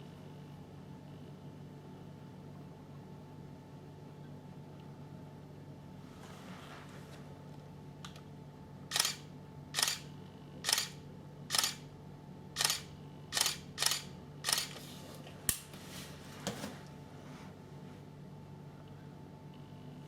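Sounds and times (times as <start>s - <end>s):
camera shutter clicks: 8.9s - 9.2s, 9.8s - 11.8s, 12.6s - 14.8s.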